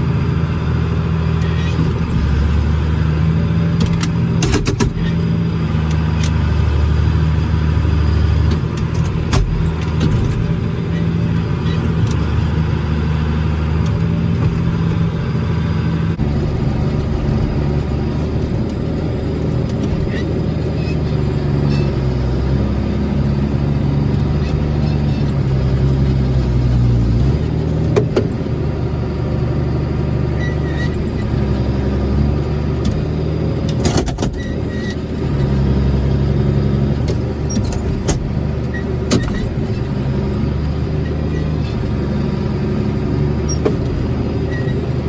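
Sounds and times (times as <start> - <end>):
farm machine engine running: 0.0 - 45.0
sharp knocks and clanks: 3.8 - 5.2.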